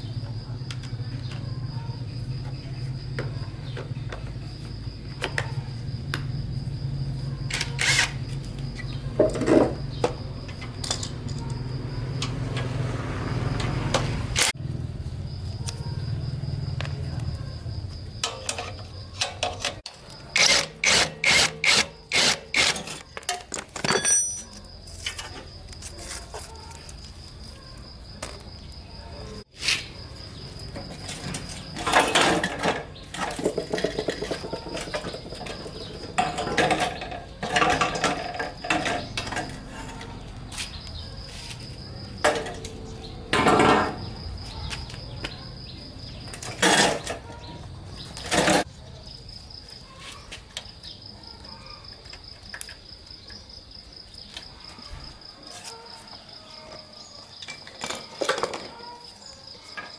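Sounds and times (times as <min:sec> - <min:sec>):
metal tools clinking and scraping: 0:07.5 - 0:12.8, 0:16.7 - 0:29.9, 0:30.6 - 0:45.2, 0:46.2 - 0:48.7.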